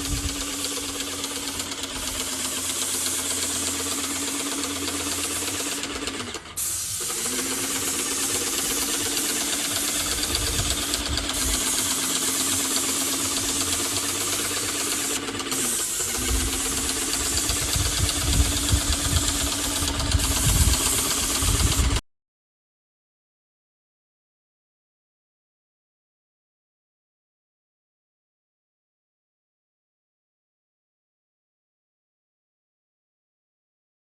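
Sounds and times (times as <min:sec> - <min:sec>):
paint spray hissing: 0:00.0 - 0:22.0
pump motor humming: 0:00.0 - 0:22.0.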